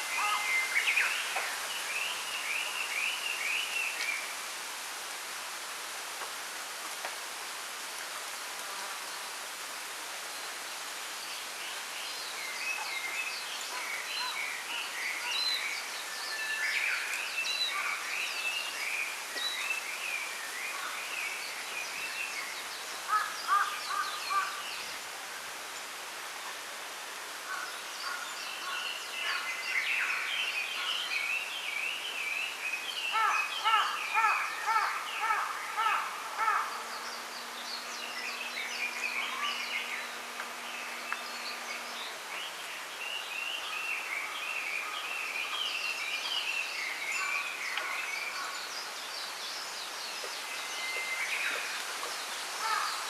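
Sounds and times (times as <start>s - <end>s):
wind rustling bamboo: 0.0s - 53.0s
small birds chirping: 27.5s - 53.0s.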